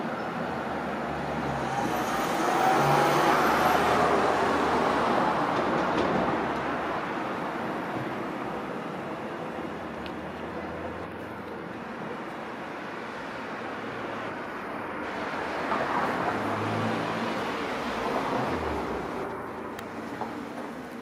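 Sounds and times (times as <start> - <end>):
train rolling slowly: 1.4 - 12.7, 17.4 - 21.0.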